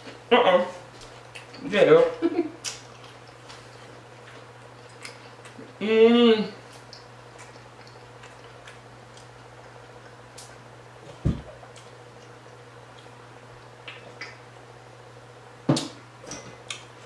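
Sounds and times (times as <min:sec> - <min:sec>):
low steady hum: 0:00.0 - 0:17.0
close-mouthed chewing: 0:02.6 - 0:05.8, 0:06.6 - 0:10.6.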